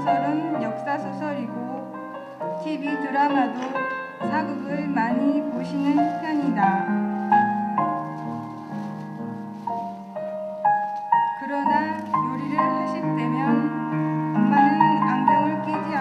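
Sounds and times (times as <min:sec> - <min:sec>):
slow piano music: 0:00.0 - 0:16.0
person speaking: 0:02.6 - 0:09.9.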